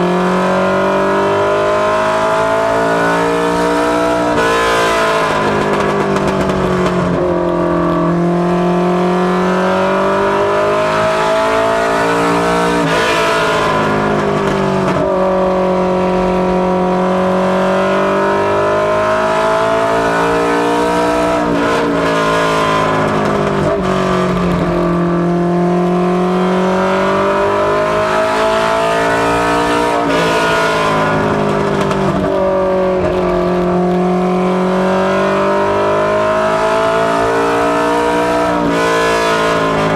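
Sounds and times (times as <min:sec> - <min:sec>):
race car engine running hard: 0:00.1 - 0:39.9.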